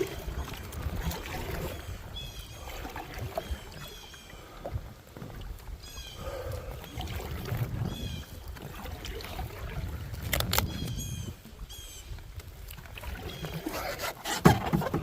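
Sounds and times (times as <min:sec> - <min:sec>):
moving water rumble: 0:00.0 - 0:15.0
paddle strokes: 0:00.0 - 0:15.0
sharp knocks on canoe: 0:14.2 - 0:15.0.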